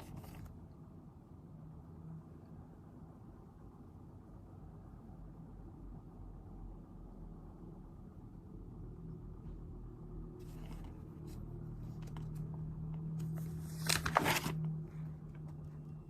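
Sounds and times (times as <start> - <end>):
paper rustling: 0.0 - 0.5, 10.4 - 12.6, 13.2 - 14.8
low steady hum: 0.0 - 16.0.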